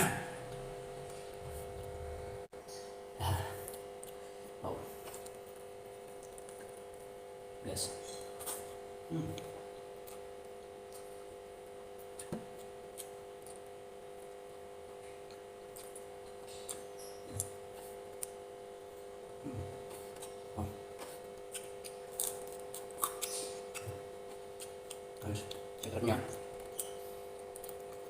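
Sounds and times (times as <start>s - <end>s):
low hum: 0.0s - 8.3s
person chewing: 2.8s - 7.0s, 8.0s - 11.3s, 12.0s - 18.4s, 19.0s - 25.7s, 26.3s - 28.0s.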